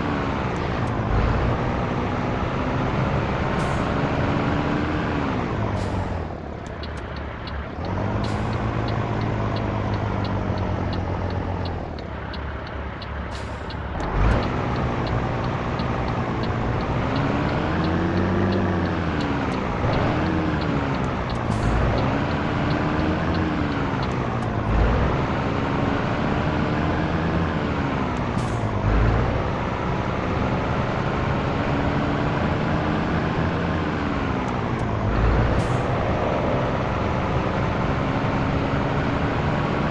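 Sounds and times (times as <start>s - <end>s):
truck diesel engine revving: 0.0s - 39.9s
light regular ticking: 5.8s - 25.2s.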